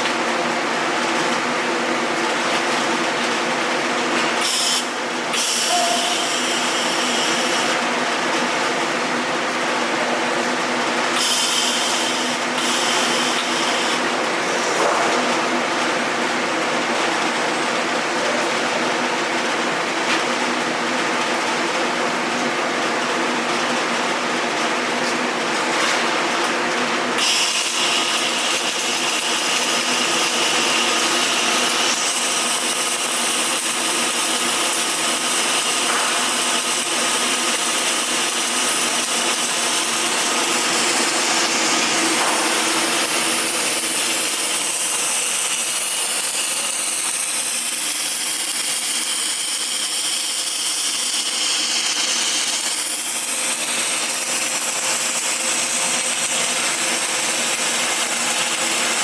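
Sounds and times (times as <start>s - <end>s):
power tool whining on metal: 4.2s - 8.1s, 10.8s - 14.8s, 27.1s - 59.0s.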